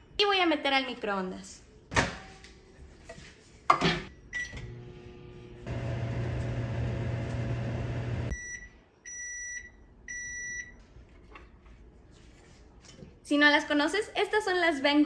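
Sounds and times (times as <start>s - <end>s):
microwave end beeps: 4.1s - 10.8s
microwave oven humming: 4.5s - 8.4s
microwave keypad beep: 8.2s - 10.8s.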